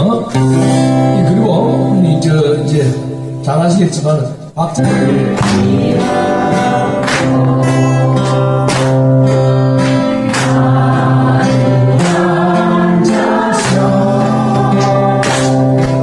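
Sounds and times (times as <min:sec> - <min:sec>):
strummed acoustic guitar: 0:00.0 - 0:03.4, 0:04.8 - 0:16.0
group singing worship song: 0:04.8 - 0:16.0.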